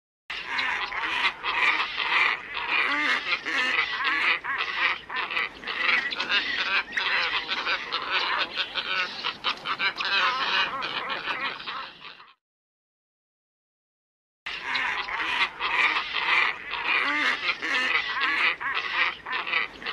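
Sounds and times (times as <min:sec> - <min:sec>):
flock of birds calling: 0:00.3 - 0:12.4, 0:14.5 - 0:19.9.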